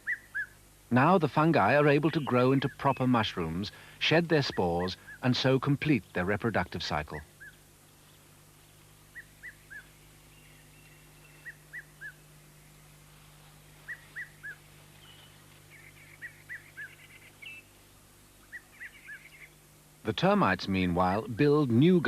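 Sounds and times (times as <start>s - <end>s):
bird whistling call: 0.0s - 0.6s, 9.1s - 12.2s, 13.8s - 17.7s, 18.4s - 19.6s.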